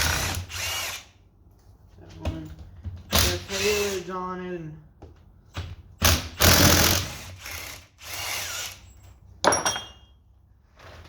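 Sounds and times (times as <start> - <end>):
ringing metallic clank: 9.4 - 10.2.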